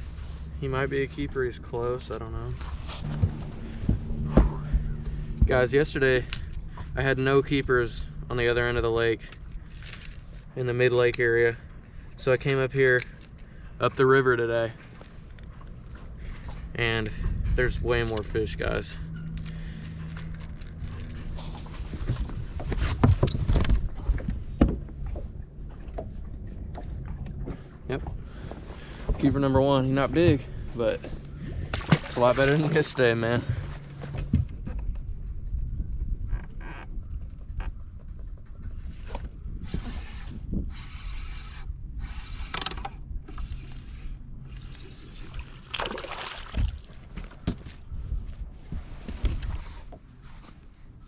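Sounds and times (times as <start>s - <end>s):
low steady hum: 0.0s - 51.0s
knocks and thumps on a boat: 3.1s - 5.9s, 21.8s - 35.2s
fishing reel whirring: 5.7s - 13.6s, 17.8s - 21.3s, 39.0s - 45.8s
water splashing: 44.8s - 47.1s.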